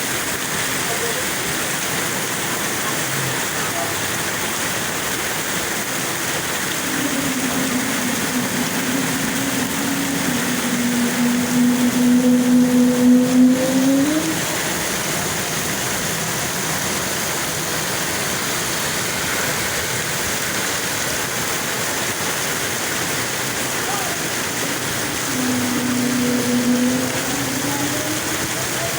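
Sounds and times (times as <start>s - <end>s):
steady rain hiss: 0.0s - 28.9s
low engine drone: 6.2s - 19.2s, 23.4s - 28.9s.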